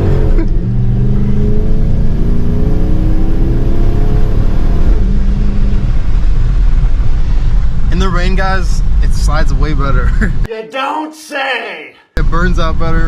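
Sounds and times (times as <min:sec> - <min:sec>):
car engine revving hard: 0:00.0 - 0:06.1.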